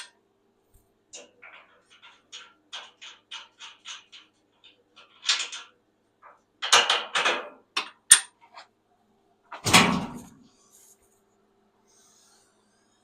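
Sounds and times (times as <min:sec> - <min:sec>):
metal clanking and rattling: 0:09.6 - 0:10.4.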